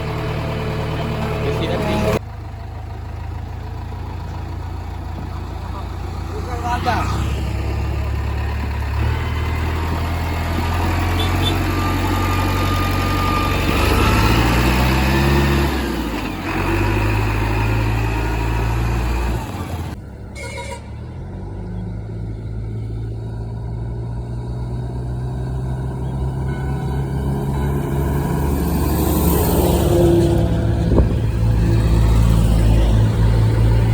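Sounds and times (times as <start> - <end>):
diesel engine revving: 0.0 - 33.9.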